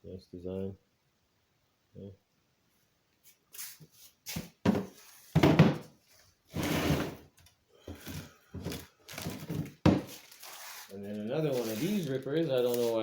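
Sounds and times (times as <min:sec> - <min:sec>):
knocks of boxed parts: 0:04.3 - 0:06.0, 0:07.9 - 0:10.3
packaging rustling: 0:08.0 - 0:13.0.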